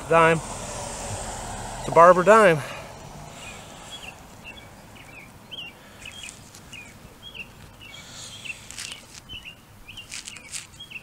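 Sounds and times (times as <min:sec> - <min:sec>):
small bird chirping: 0:03.4 - 0:11.0
gloved hands rustling soil: 0:03.8 - 0:11.0.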